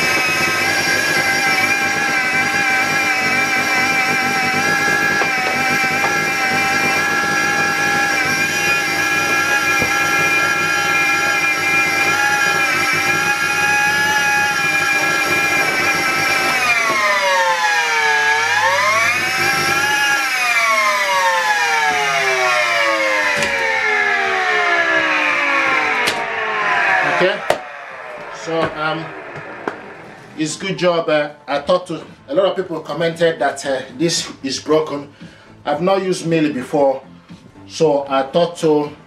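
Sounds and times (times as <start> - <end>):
vacuum cleaner motor whining: 0.0 - 30.8.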